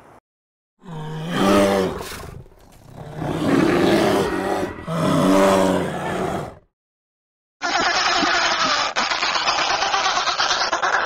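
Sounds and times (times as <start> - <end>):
animal giving low calls: 0.8 - 6.6.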